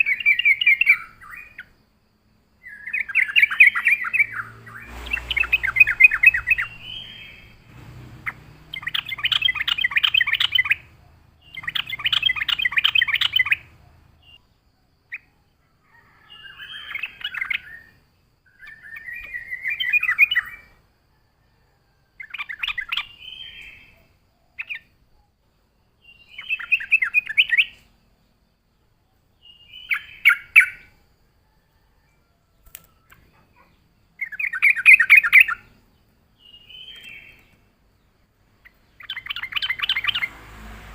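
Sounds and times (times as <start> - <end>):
bird chattering song: 0.0 - 1.8, 2.6 - 15.4, 16.4 - 20.8, 22.2 - 25.0, 26.0 - 27.9, 29.4 - 30.9, 33.0 - 40.4.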